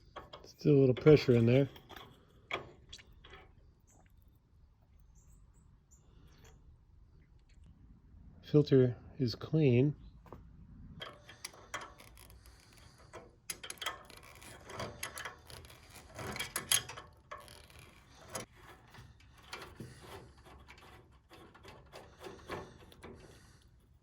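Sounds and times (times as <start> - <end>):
metal parts clicking and clinking: 11.0 - 23.8
metal parts scraping: 11.0 - 24.0.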